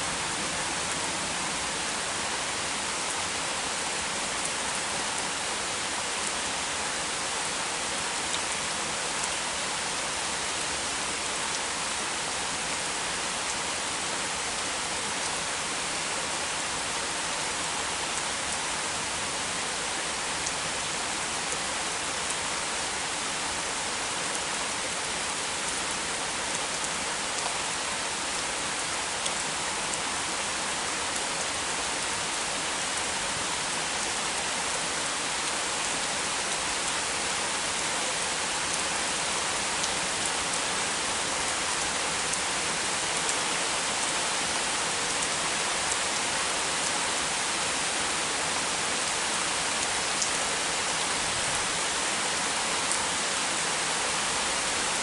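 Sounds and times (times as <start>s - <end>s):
heavy rain hissing: 0.0s - 5.9s.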